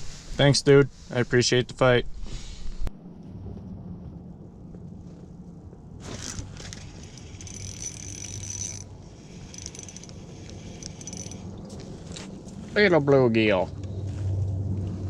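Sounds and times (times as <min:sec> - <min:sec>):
steady low hum: 0:00.0 - 0:15.0
reel rattle: 0:06.0 - 0:11.5
fishing reel whirring: 0:06.0 - 0:11.6.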